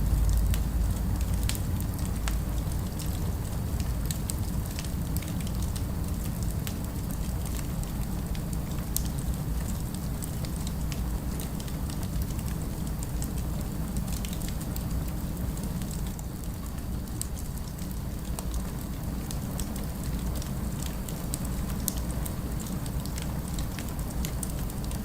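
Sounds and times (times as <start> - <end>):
low rumble: 0.0 - 3.9
wood fire crackling: 0.0 - 25.0.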